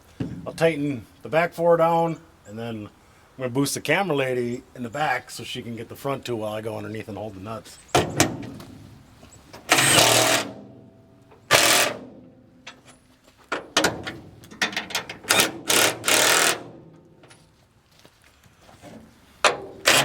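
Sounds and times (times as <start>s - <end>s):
impact wrench bursts: 9.6s - 10.6s, 11.4s - 12.2s, 15.2s - 16.8s.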